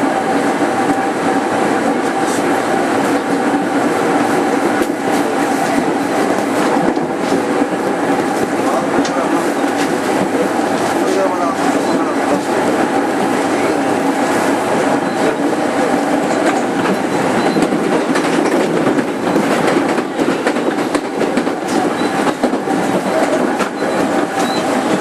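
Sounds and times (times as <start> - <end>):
train running noise: 0.0 - 25.0.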